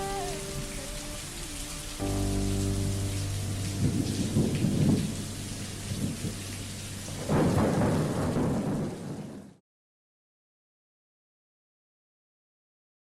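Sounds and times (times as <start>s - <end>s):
held musical chord: 0.0s - 7.5s
steady rain falling: 0.0s - 9.6s
thunder rolling: 0.0s - 9.6s.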